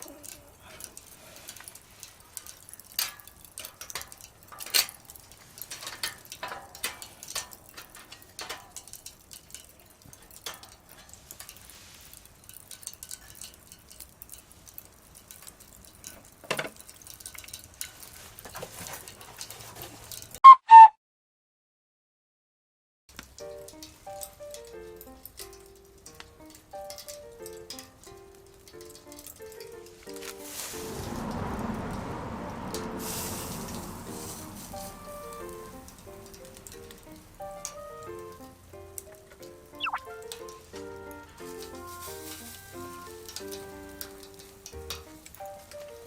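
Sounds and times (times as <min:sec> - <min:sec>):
wood fire crackling: 0:00.0 - 0:20.4, 0:23.1 - 0:46.0
short pitched tones: 0:20.4 - 0:21.0, 0:39.8 - 0:40.2.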